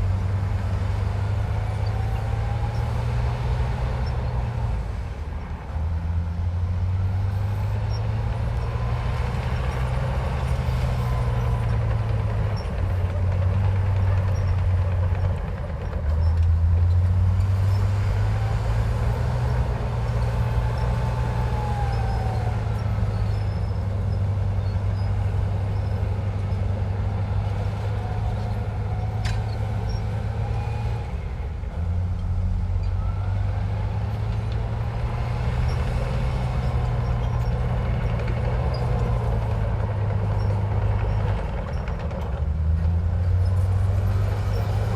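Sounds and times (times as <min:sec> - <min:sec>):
bulldozer diesel engine running: 0:00.0 - 0:44.9
faint high squeaks: 0:20.0 - 0:26.6.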